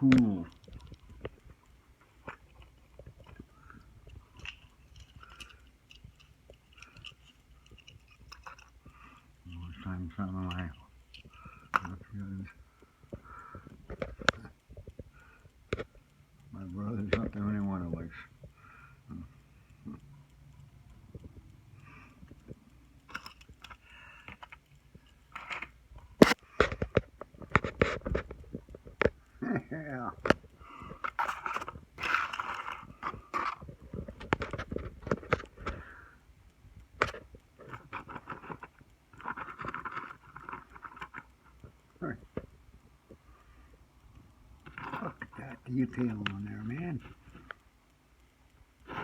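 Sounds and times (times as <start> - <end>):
toy car and plastic box handled: 0.0 - 15.1, 22.2 - 29.2, 29.8 - 35.8, 36.9 - 42.6, 44.6 - 47.6
plastic packaging clicking and crackling: 0.0 - 16.0, 22.2 - 36.1, 36.7 - 43.3.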